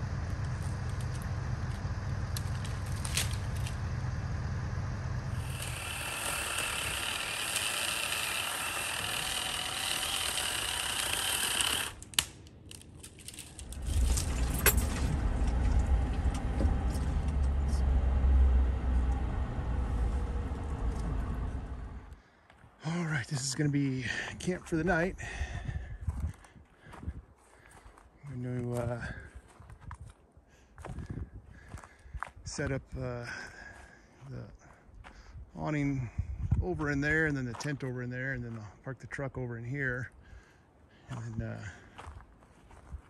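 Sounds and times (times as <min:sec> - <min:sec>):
truck engine and tyres rumbling: 0:00.0 - 0:07.7, 0:11.7 - 0:27.1
knocks and rattles: 0:13.3 - 0:17.9.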